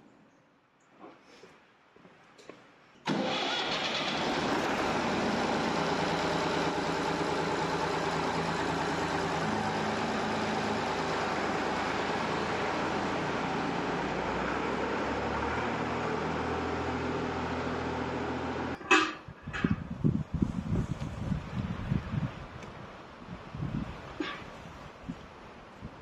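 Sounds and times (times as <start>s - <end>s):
tractor engine starting and idling: 3.0s - 19.8s.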